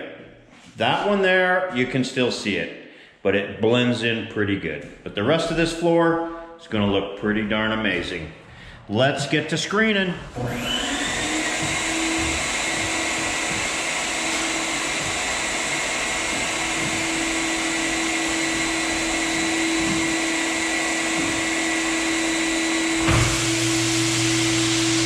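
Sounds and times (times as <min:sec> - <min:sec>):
floor buffer motor hum: 0:10.1 - 0:25.0.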